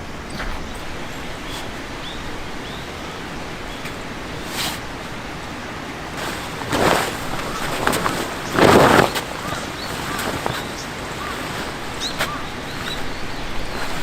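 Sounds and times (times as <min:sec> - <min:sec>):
outdoor background noise: 0:00.0 - 0:14.0
sharp crackle: 0:06.2 - 0:14.0.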